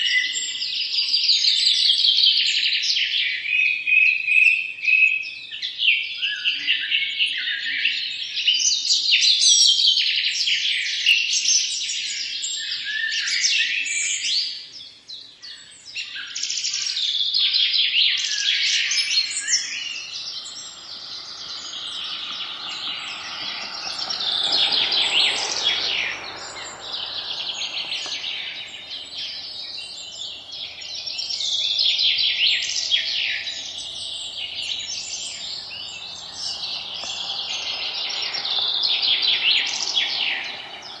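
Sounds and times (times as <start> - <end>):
many small birds chirping: 14.3 - 41.0
soft rushing sound: 18.6 - 41.0.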